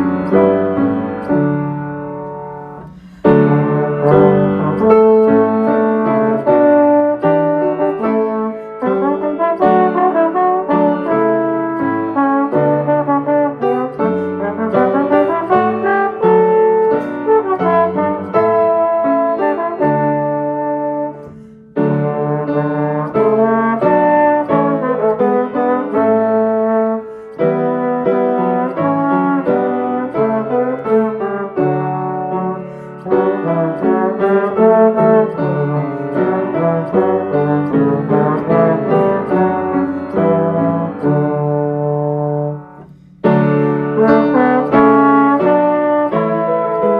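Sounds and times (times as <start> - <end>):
brass and keyboard music: 0.0 - 46.9.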